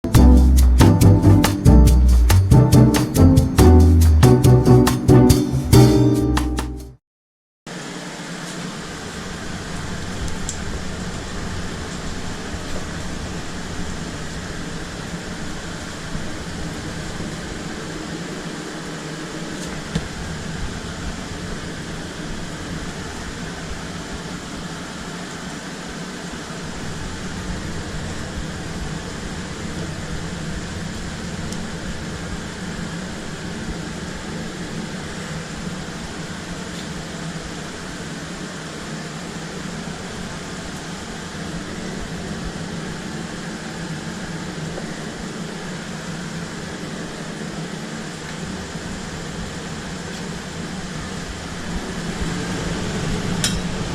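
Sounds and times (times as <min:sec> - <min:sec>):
machinery humming: 0:00.0 - 0:06.2.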